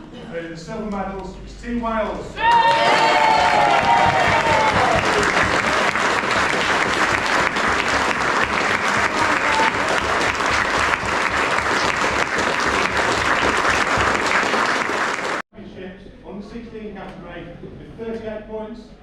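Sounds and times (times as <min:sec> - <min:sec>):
crowd applauding: 0:02.4 - 0:15.4.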